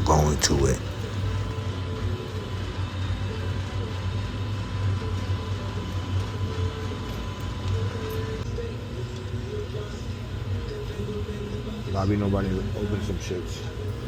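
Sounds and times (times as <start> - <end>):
faint steady hum: 0.0 - 1.6.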